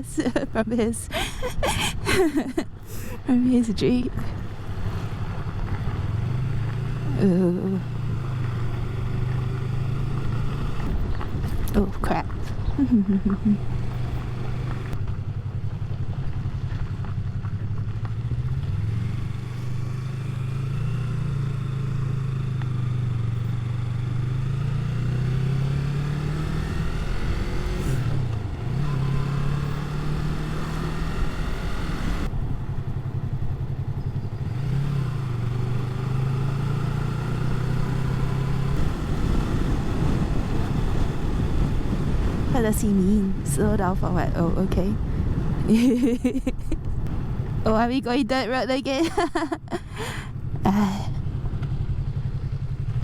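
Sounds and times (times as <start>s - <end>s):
wind and road rush: 0.0s - 53.0s
motorcycle engine revving: 3.6s - 46.2s, 46.9s - 53.0s.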